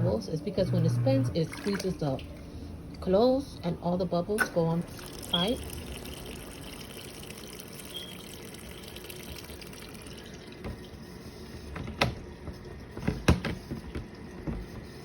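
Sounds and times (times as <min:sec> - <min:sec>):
water running into tub: 0:00.0 - 0:03.1, 0:04.5 - 0:14.6
water sloshing: 0:00.0 - 0:03.4.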